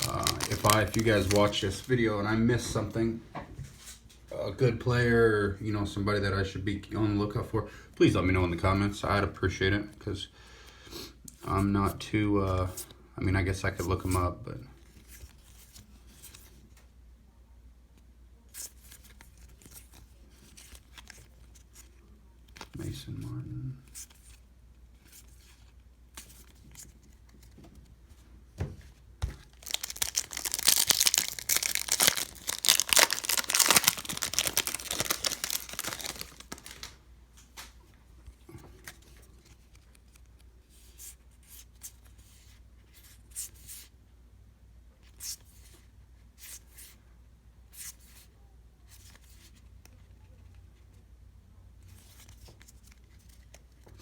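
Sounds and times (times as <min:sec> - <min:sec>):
wrapper tearing and crinkling: 0:00.0 - 0:02.0, 0:29.4 - 0:37.0.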